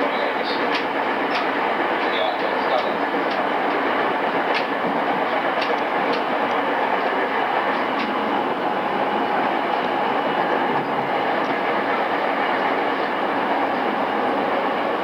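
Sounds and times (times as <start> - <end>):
rail-joint clicks: 0.0 - 8.3, 9.7 - 13.2
train wheels rumbling on rail: 0.0 - 15.0.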